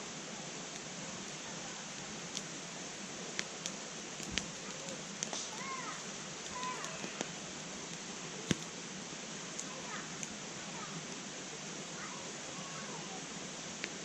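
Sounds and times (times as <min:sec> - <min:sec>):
wood fire hissing: 0:00.0 - 0:14.0
burning wood popping and cracking: 0:01.9 - 0:08.8.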